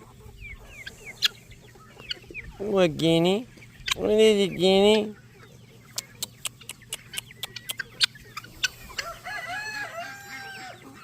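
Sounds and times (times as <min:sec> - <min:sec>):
poultry long call: 0:05.0 - 0:11.0.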